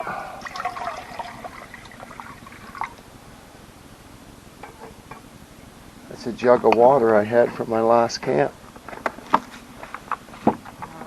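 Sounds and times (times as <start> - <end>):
water sloshing in a jug: 0.0 - 3.0.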